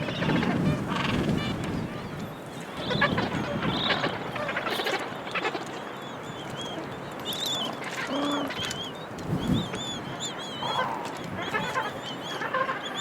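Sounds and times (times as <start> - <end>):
low braying penguin call: 10.4 - 13.0
penguins squawking and honking: 10.6 - 13.0.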